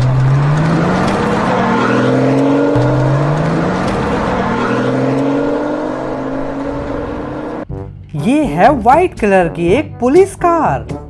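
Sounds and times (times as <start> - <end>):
car engine accelerating: 0.0 - 7.7.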